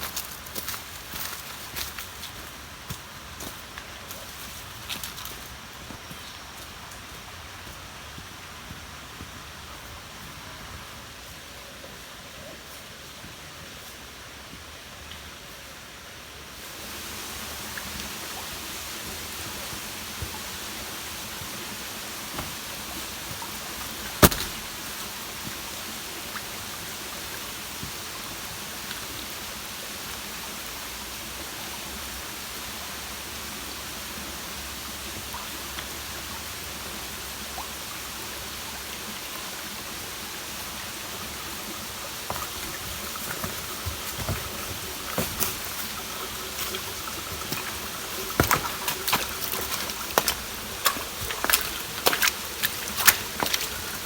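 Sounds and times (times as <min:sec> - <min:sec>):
sharp click: 0:24.2 - 0:24.8.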